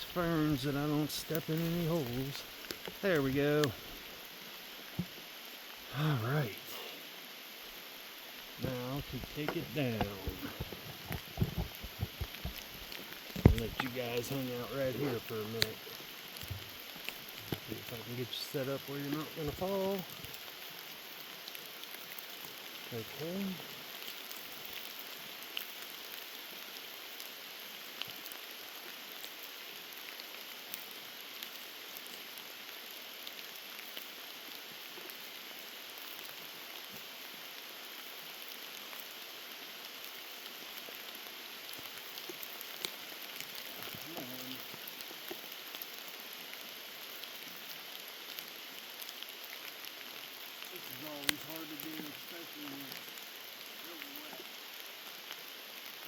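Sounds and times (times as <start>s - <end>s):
raindrops tapping: 0.0s - 4.2s, 8.5s - 25.0s, 41.6s - 45.7s, 50.4s - 54.6s
heavy rain falling: 0.0s - 56.0s.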